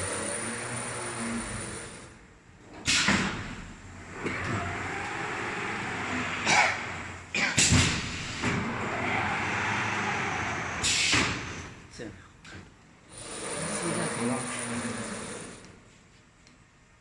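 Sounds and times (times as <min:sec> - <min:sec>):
machinery running: 0:13.1 - 0:15.7.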